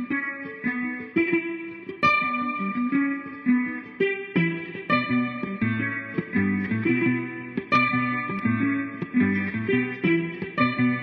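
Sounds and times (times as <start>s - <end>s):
picked string riff: 0.0s - 11.0s
low bass line: 4.9s - 11.0s.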